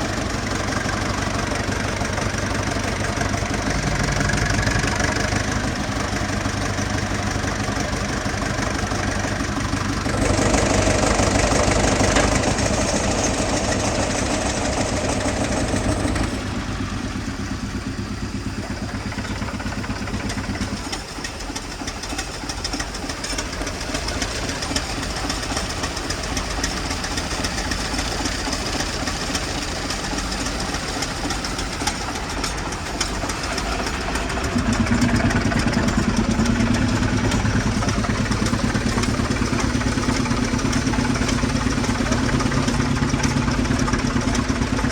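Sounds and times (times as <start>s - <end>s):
air compressor engine knocking: 0.0s - 44.9s.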